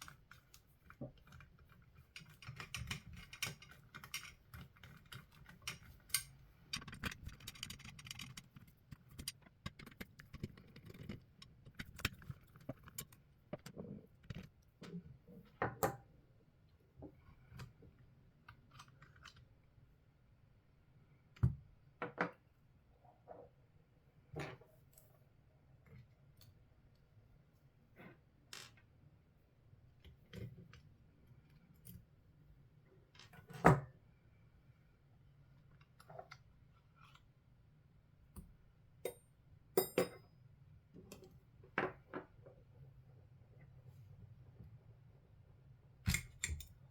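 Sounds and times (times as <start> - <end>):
tools and parts clicking: 2.2 - 13.7, 39.8 - 40.2, 46.1 - 46.8.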